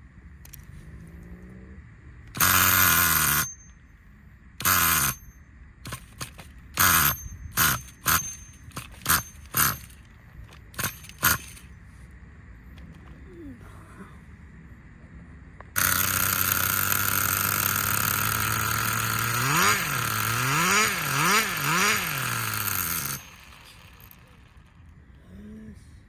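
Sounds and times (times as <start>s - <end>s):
small engine idling and revving: 0.3s - 3.7s, 4.6s - 11.8s, 15.7s - 25.1s.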